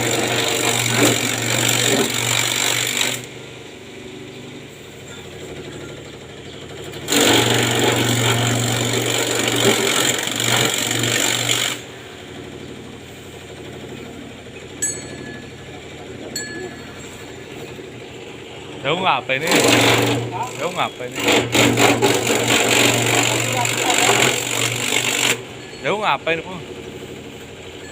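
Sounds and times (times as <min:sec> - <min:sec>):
grass chopper machine humming: 0:00.0 - 0:27.9
machine cutting grass: 0:00.0 - 0:27.9.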